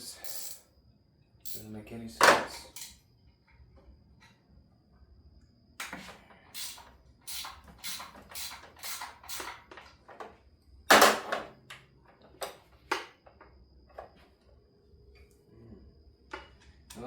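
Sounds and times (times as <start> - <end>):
wrench clicking: 0.2 - 0.6, 6.6 - 9.6.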